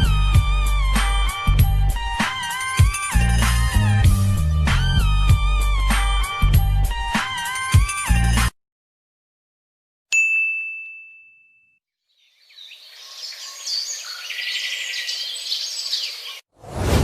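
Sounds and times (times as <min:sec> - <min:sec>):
bright ding: 0:10.2 - 0:11.8
birds chirping and singing: 0:12.1 - 0:16.4.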